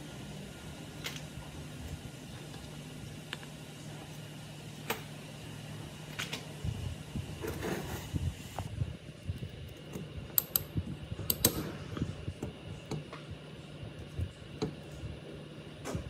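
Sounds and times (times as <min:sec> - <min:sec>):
steady low hum: 0:00.0 - 0:16.0
small tools clicking and tapping: 0:09.9 - 0:10.7, 0:11.3 - 0:11.6.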